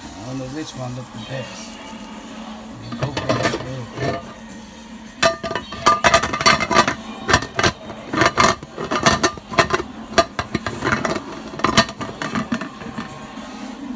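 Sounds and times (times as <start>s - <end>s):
dishes and utensils clattering: 2.8s - 13.4s.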